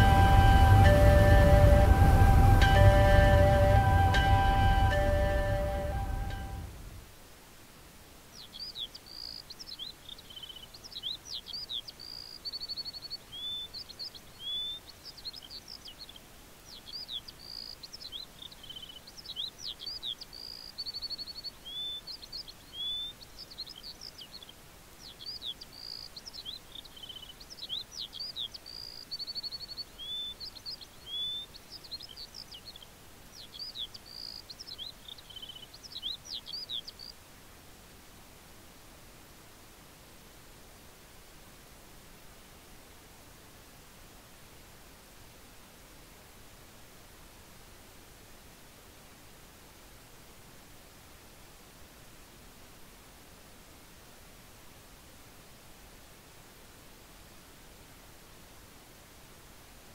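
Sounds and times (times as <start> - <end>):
faint hiss: 0.0 - 59.9
birds chirping and trilling: 8.3 - 37.2.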